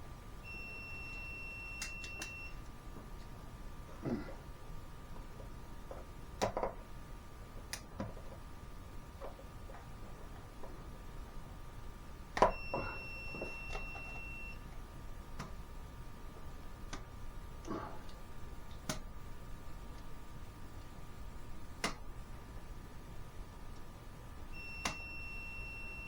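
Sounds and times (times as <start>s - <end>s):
clicks and knocks of hand work: 5.4s - 6.8s.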